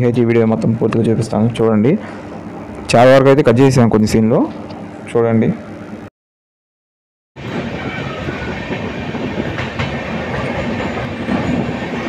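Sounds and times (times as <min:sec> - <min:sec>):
train wheels rumbling on rail: 0:07.4 - 0:12.0.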